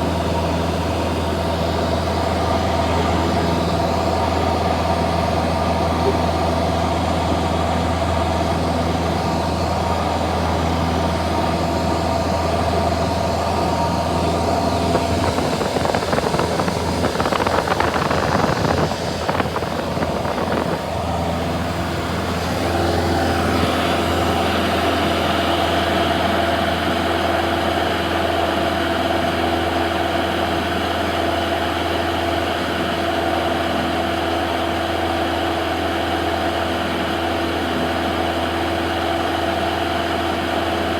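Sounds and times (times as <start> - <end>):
propeller plane engine droning: 0.0 - 40.9.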